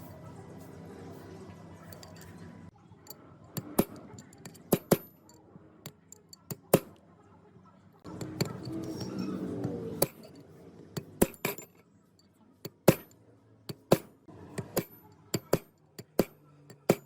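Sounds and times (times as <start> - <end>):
metallic clinks and knocks: 1.9 - 2.5, 3.1 - 6.9, 8.1 - 17.0.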